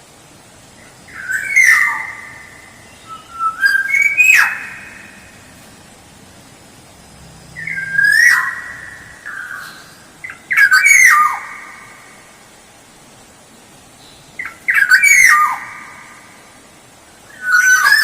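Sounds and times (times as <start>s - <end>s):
oriole fluting whistle calls: 1.1s - 5.5s, 7.6s - 11.9s, 14.2s - 16.2s.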